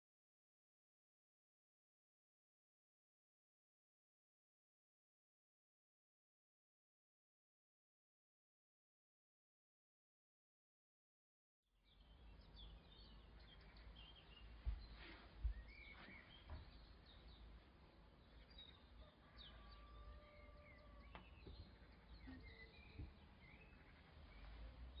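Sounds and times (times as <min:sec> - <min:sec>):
faint birds chirping: 0:11.8 - 0:25.0.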